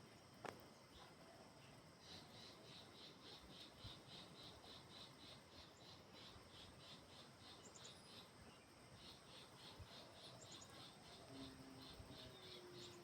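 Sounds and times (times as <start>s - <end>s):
insect chirping: 0.0s - 13.0s
soft background hiss: 0.0s - 13.0s.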